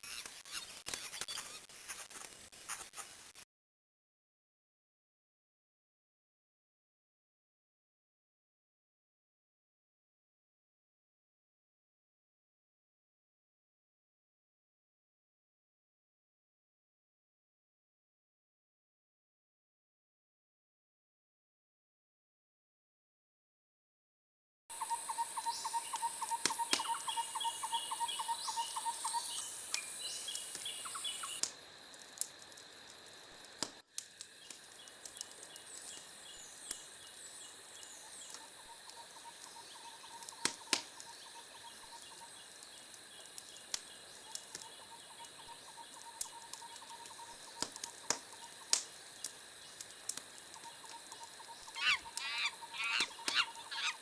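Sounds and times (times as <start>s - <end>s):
birds chirping trills: 24.8s - 31.4s, 50.6s - 54.0s
rising and falling bird calls: 51.6s - 54.0s.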